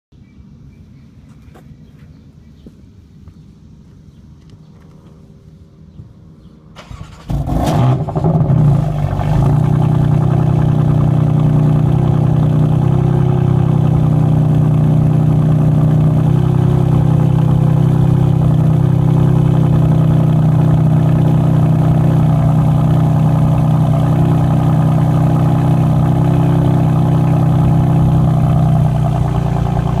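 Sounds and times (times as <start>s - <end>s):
car engine starting and idling: 6.7s - 30.0s.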